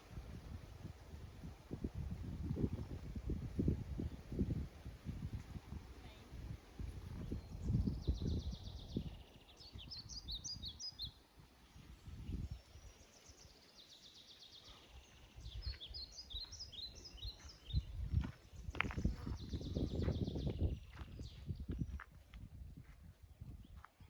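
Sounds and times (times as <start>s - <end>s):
songbird chirping: 5.2s - 24.0s.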